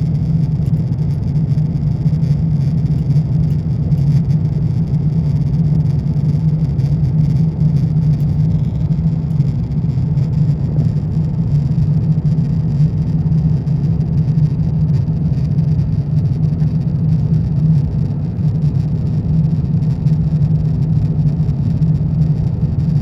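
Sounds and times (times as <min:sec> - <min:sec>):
airplane cabin engine hum: 0:00.0 - 0:23.0.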